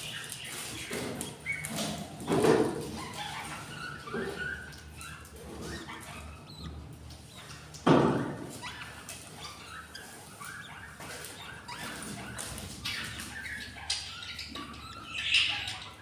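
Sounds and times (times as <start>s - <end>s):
budgerigars chirping: 0.0s - 16.0s.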